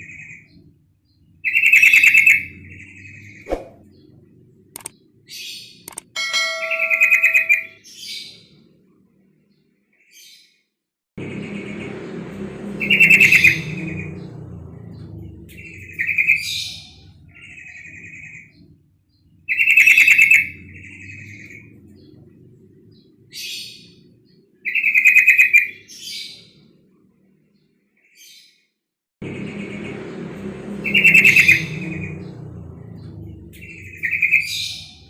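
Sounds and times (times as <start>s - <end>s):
low background rumble: 11.2s - 19.6s, 20.2s - 24.6s, 29.2s - 35.0s.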